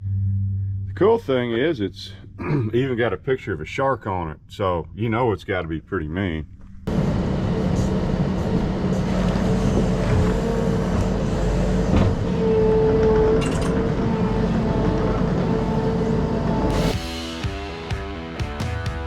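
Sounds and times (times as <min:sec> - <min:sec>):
vehicle engine running: 0:06.5 - 0:19.0.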